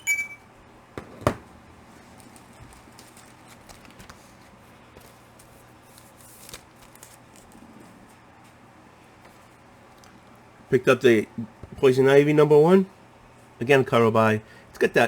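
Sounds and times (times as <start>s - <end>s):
comic books rustling: 1.4s - 8.6s.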